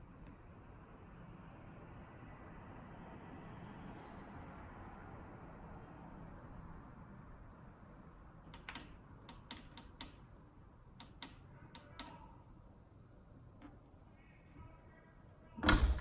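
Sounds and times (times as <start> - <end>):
faint steady background noise: 0.0 - 16.0
dishwasher clicks: 15.6 - 16.0.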